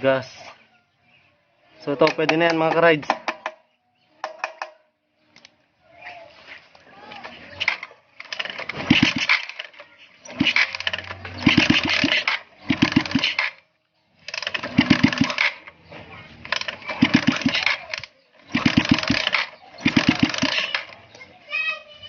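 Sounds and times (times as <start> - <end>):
motorcycle engine revving: 6.4 - 21.2.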